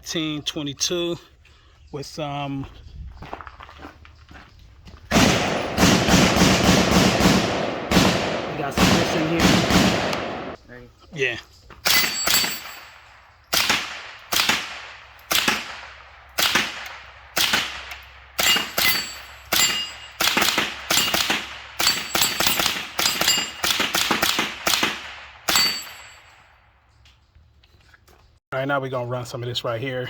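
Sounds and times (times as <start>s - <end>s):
suppressed rifle shots: 5.1s - 10.6s, 13.5s - 25.9s.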